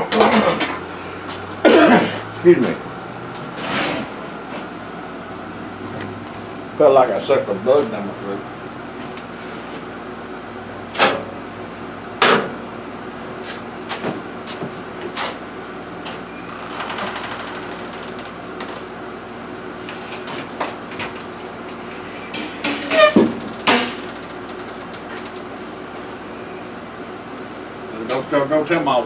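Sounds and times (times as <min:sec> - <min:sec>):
steady hum: 0:21.1 - 0:26.8
short falling squeak: 0:22.0 - 0:24.2.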